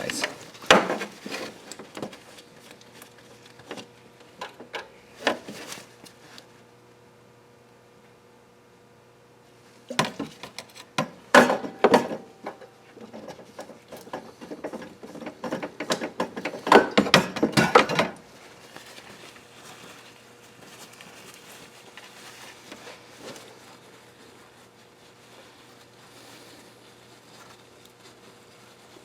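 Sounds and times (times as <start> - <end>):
faint rustling: 18.4 - 29.0.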